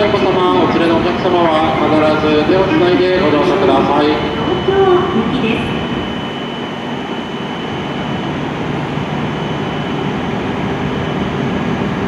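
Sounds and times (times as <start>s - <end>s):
stationary train hum and hiss: 0.0s - 12.0s
thin high steady tone: 1.2s - 10.2s.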